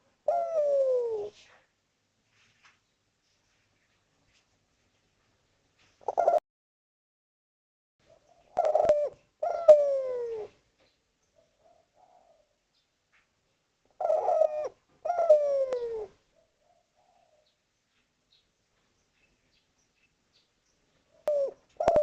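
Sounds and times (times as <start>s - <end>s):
dove cooing: 0.0s - 1.5s, 6.0s - 6.4s, 8.1s - 10.6s, 11.4s - 12.6s, 13.9s - 17.5s, 21.1s - 22.0s.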